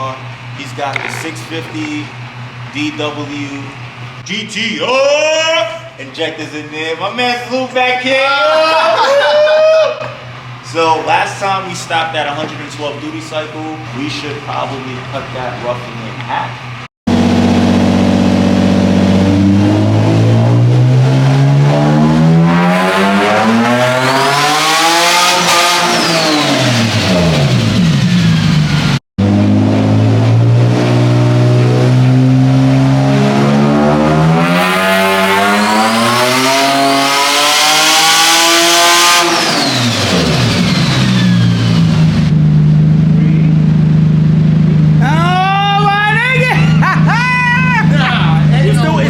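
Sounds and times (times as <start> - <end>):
car engine revving: 17.1 - 45.5.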